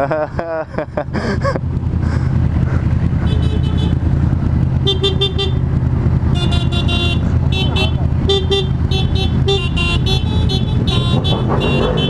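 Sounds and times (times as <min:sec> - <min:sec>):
vehicle horn toots: 0:03.2 - 0:04.0, 0:04.8 - 0:05.6, 0:06.3 - 0:12.0.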